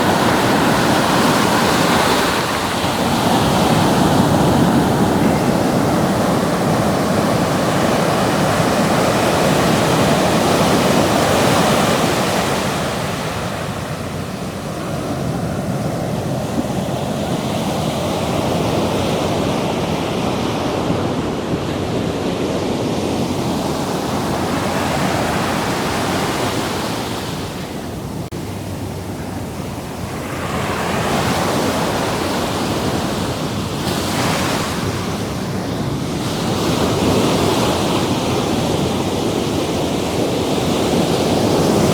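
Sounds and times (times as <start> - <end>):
ocean waves washing: 0.0 - 41.9
wind on microphone: 0.0 - 41.9.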